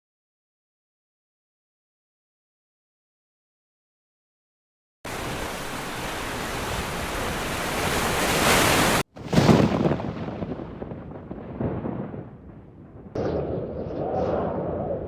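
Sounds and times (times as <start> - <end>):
heavy rain: 5.1 - 9.0
thunderclap rumbling: 9.2 - 15.0.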